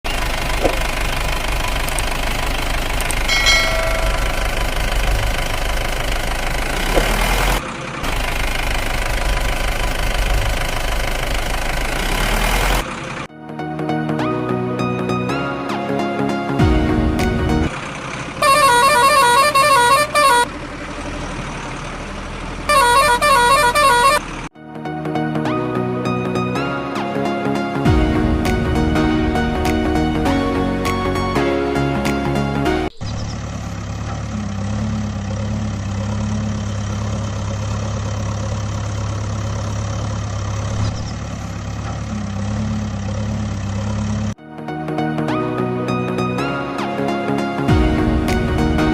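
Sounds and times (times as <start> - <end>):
truck engine rumbling: 0.0 - 44.4, 45.0 - 48.9
melodic multi-tone horn: 18.4 - 20.5, 22.7 - 24.2.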